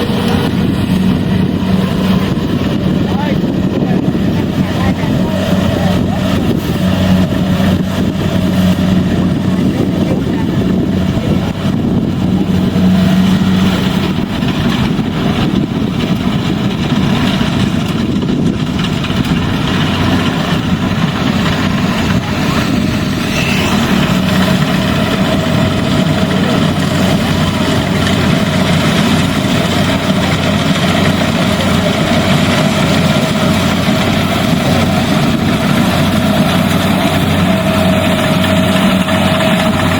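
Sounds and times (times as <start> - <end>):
combine harvester engine humming: 0.0 - 39.9.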